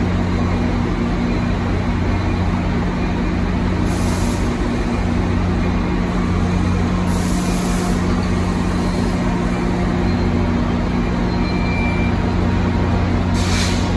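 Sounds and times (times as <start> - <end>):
diesel locomotive humming: 0.0 - 13.9
air hiss: 13.4 - 13.9.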